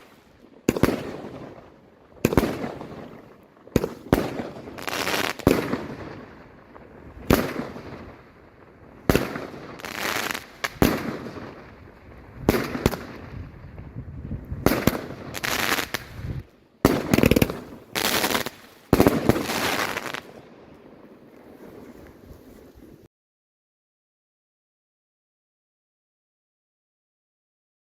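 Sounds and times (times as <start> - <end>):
fireworks bangs: 0.0 - 20.6
fireworks hissing crackle: 2.3 - 8.3, 8.9 - 23.1.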